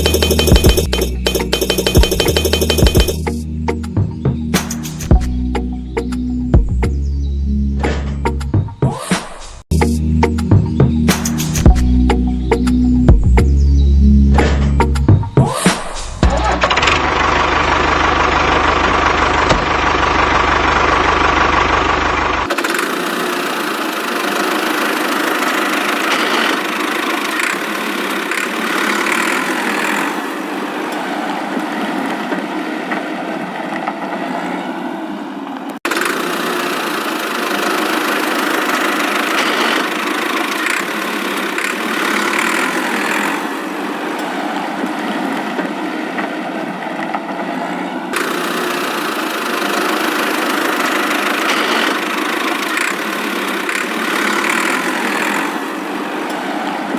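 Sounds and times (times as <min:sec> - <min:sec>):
small motor buzzing: 0:22.4 - 0:32.3, 0:35.8 - 0:45.8, 0:48.1 - 0:56.9.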